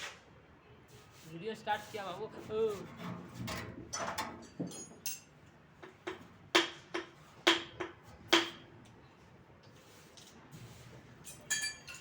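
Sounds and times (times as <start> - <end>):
metal tools clinking: 4.4 - 5.3, 11.2 - 12.0.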